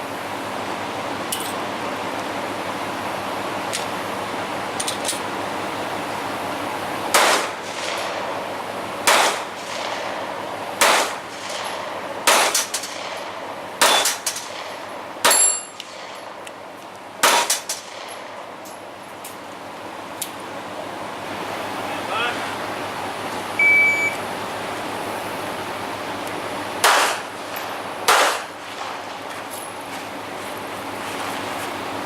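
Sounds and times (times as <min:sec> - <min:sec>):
gunshots with echo: 0:07.1 - 0:08.3, 0:09.0 - 0:10.2, 0:10.8 - 0:13.2, 0:26.8 - 0:27.2, 0:28.1 - 0:29.0.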